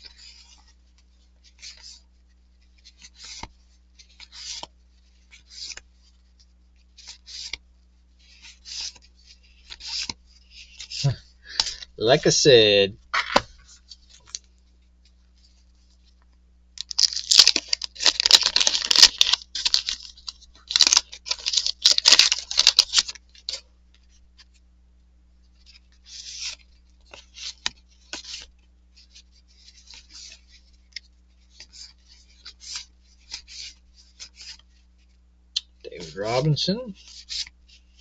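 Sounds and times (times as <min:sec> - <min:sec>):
cards rustling and sliding: 0:01.4 - 0:06.3, 0:06.9 - 0:07.6, 0:08.2 - 0:14.6, 0:16.8 - 0:24.6, 0:25.7 - 0:34.8, 0:37.0 - 0:38.0
wrapper ripping and crinkling: 0:16.8 - 0:23.6.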